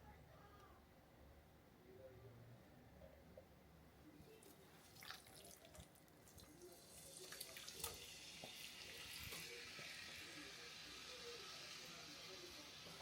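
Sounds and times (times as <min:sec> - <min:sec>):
chicken sizzling in a pan: 0:06.7 - 0:13.0.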